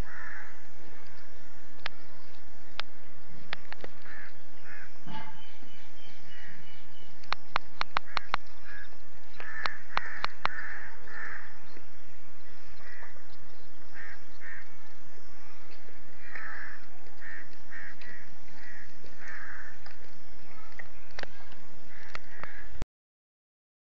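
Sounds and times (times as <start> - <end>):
crow-like caws: 0.0 - 0.6, 4.0 - 5.3, 8.0 - 11.6, 12.8 - 13.2, 13.9 - 14.7, 16.2 - 19.8, 21.9 - 22.8
sharp clicks: 7.2 - 8.6, 9.4 - 10.7, 15.7 - 22.6.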